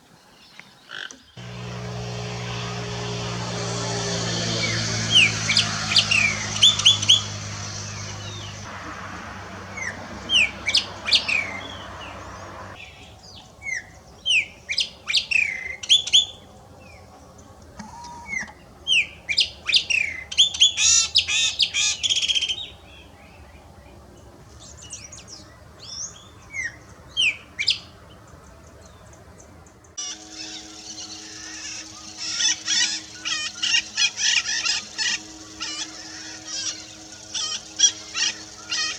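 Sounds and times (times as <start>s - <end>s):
songbirds whistling: 0.4s - 17.0s, 30.0s - 38.9s.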